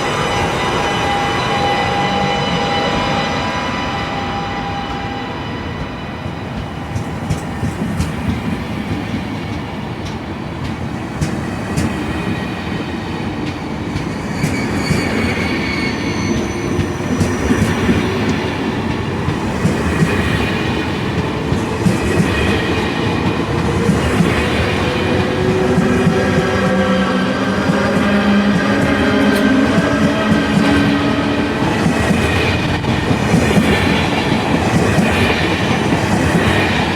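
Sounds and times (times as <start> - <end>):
high-pitched wheel squeal: 0.0 - 5.8, 14.1 - 17.8
train rumbling on rails: 0.0 - 36.9.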